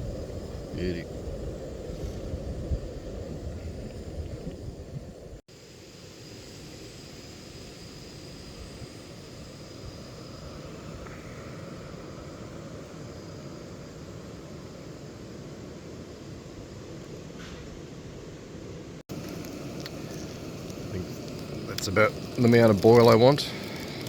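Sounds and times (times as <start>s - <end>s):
camp stove burner roaring: 19.1s - 24.0s.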